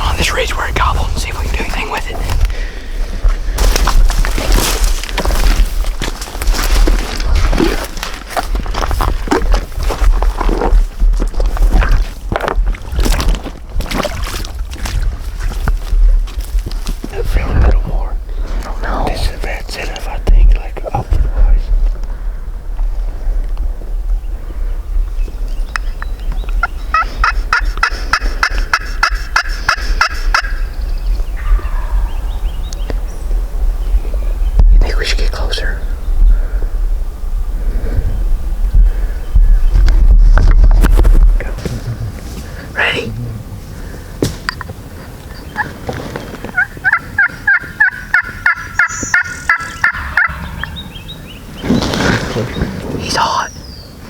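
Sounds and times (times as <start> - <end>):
wind on microphone: 0.0 - 18.6, 19.3 - 44.2
turkey call notes: 26.6 - 30.6, 46.5 - 51.1
turkey call yelps: 46.6 - 50.8.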